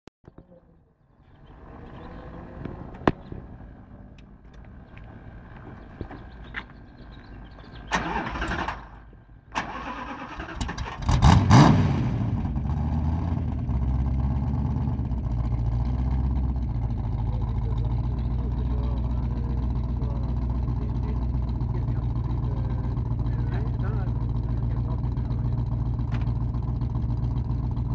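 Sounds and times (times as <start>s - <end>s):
engine revving and idling: 1.2s - 27.9s
engine cranking on starter: 7.3s - 12.2s.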